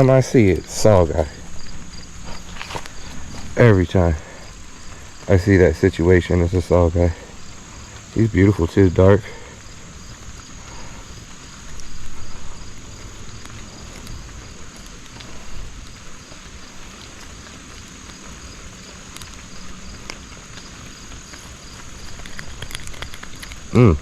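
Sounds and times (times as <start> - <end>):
insects trilling: 0.0 - 24.0
pulsed insect chirp: 0.0 - 24.0
faint clicks: 9.2 - 24.0.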